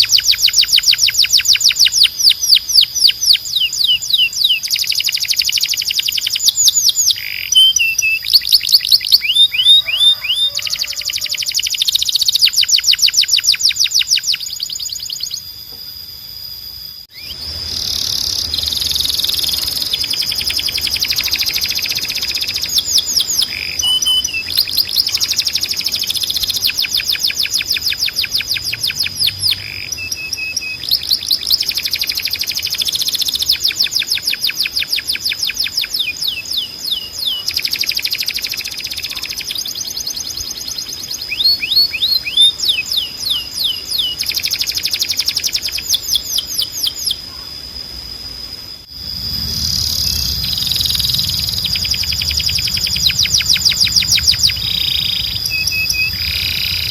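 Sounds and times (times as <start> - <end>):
canary singing trills: 0.0 - 47.7, 48.4 - 56.9
low hum: 15.7 - 23.8, 47.3 - 56.9
steady high tone: 47.1 - 56.9.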